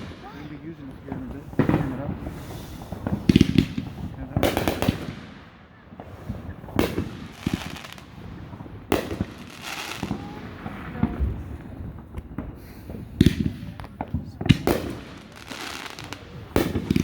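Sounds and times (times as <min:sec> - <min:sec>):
fireworks bangs: 0:00.0 - 0:17.0
fireworks crackling: 0:00.0 - 0:17.0
small fireworks pops: 0:00.0 - 0:17.0.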